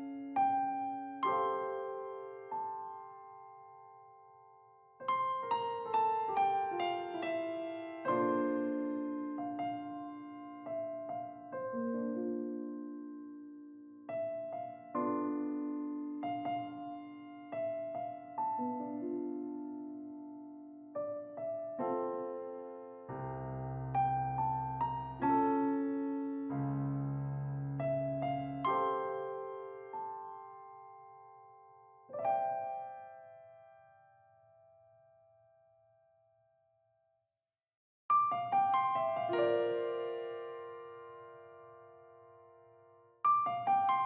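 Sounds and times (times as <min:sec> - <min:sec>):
soft piano music: 0:00.0 - 0:36.9, 0:38.1 - 0:44.0.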